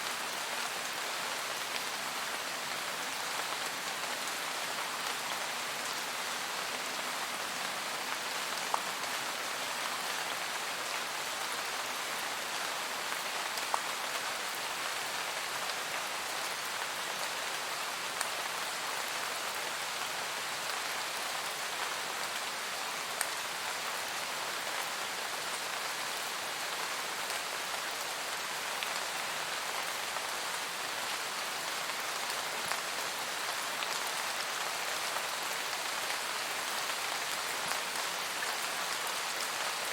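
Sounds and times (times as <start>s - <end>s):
rain hissing on leaves: 0.0s - 39.9s.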